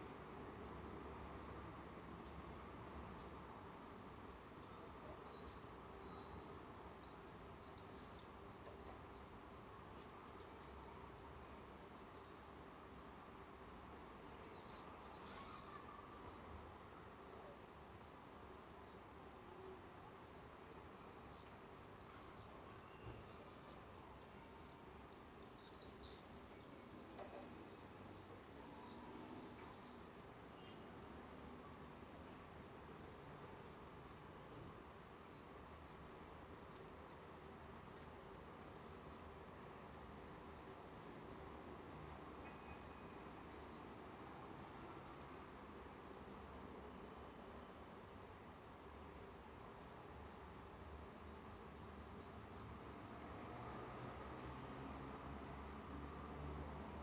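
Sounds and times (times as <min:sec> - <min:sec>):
faint outdoor background noise: 0:00.0 - 0:57.0
small birds chirping: 0:49.7 - 0:54.8.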